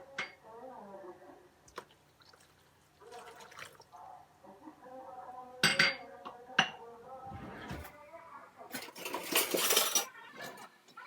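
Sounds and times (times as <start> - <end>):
kitchenware clinking: 5.6 - 8.0, 8.7 - 10.7.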